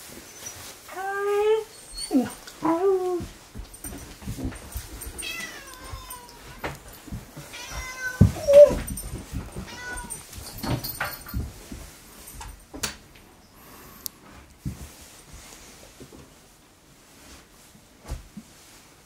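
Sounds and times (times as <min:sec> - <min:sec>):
cat meowing: 0:05.2 - 0:06.5, 0:07.5 - 0:08.9, 0:09.7 - 0:10.2.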